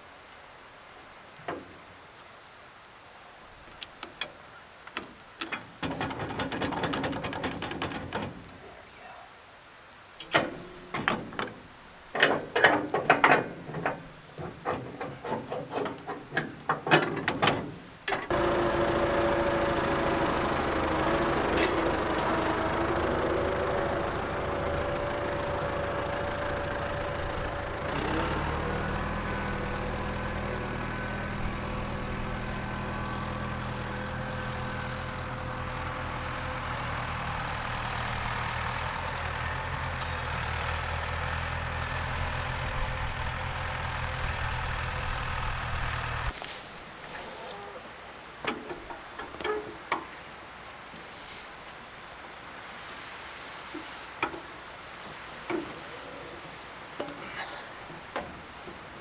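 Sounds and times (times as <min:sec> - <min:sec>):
metal knocks and clanks: 0:05.4 - 0:08.5, 0:10.2 - 0:18.3
engine idling: 0:18.1 - 0:46.5.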